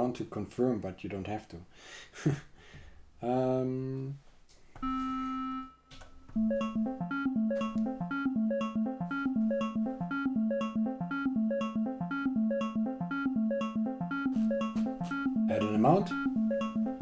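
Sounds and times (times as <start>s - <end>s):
synthesizer step-sequencer pattern: 6.4s - 17.0s.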